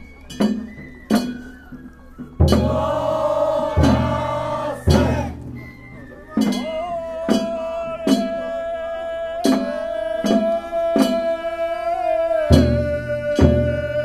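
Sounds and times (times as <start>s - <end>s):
person singing long note: 2.6s - 5.4s.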